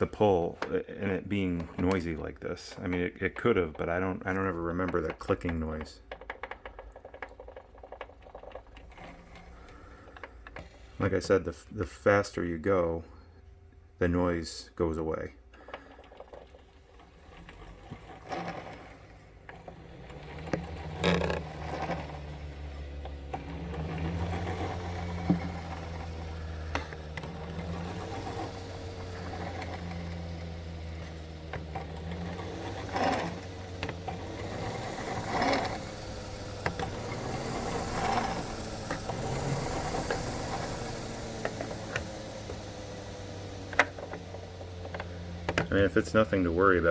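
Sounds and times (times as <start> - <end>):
rowing machine flywheel whirring: 0.0 - 46.9.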